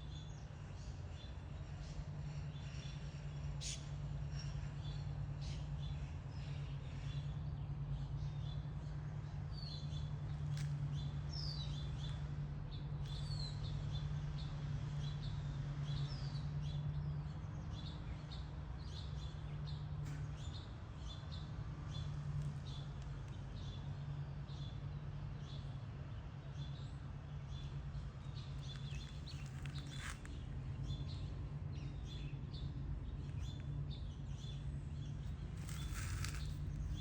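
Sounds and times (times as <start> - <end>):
small birds chirping: 26.4 - 37.0.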